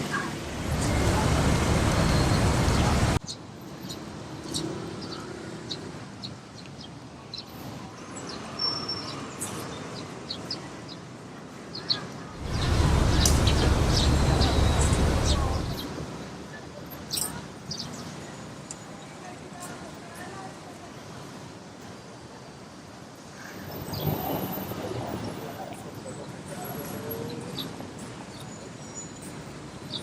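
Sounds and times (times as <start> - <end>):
road traffic rumble: 0.0 - 8.4, 11.5 - 18.1
small birds chirping: 0.6 - 11.1, 11.7 - 16.0.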